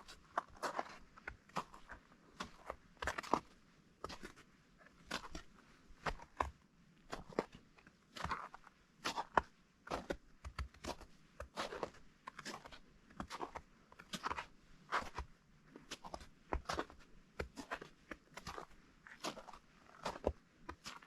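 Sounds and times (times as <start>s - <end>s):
footsteps crunching on snow: 0.4s - 4.4s, 15.9s - 21.0s.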